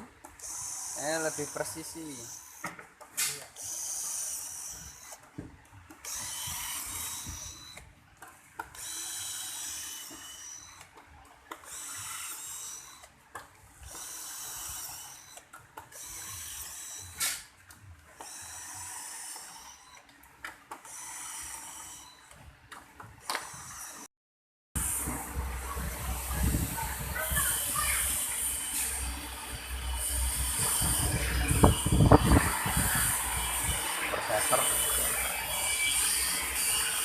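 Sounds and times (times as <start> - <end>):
power drill whining: 3.4 - 5.2, 5.9 - 7.9, 8.7 - 13.2, 13.8 - 17.5, 18.2 - 20.1, 20.8 - 22.5, 23.2 - 24.1, 26.3 - 37.0.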